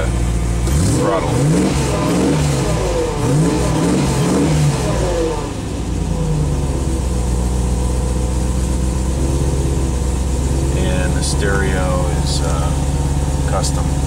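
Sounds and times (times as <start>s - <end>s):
car engine revving and idling: 0.0s - 14.0s.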